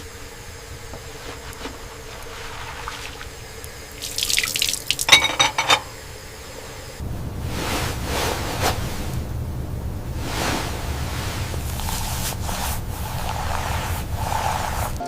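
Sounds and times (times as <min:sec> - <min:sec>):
tap water splashing into sink: 0:04.0 - 0:05.2.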